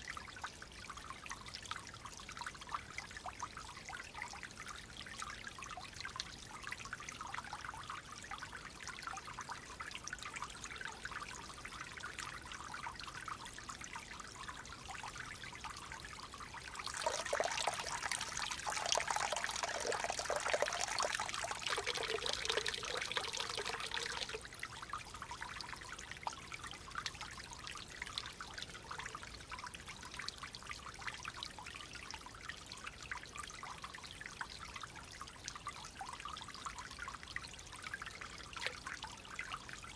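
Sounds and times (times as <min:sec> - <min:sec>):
stream trickling: 0:00.0 - 0:39.9
rush of water: 0:16.8 - 0:24.4.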